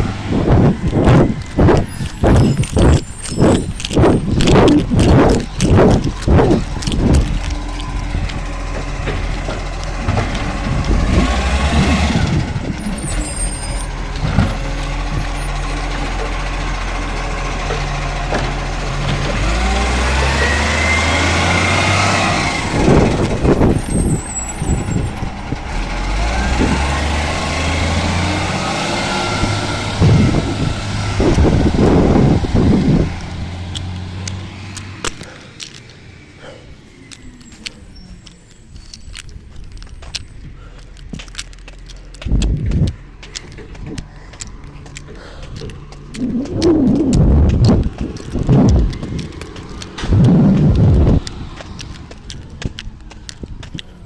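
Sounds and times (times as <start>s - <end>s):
diesel truck engine revving: 0.0s - 54.0s
loud clattering knocks: 29.4s - 33.9s.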